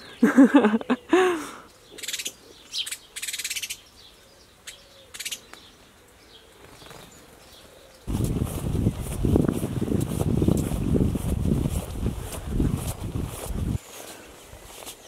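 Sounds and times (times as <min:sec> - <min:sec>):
birds singing: 0:00.0 - 0:09.2.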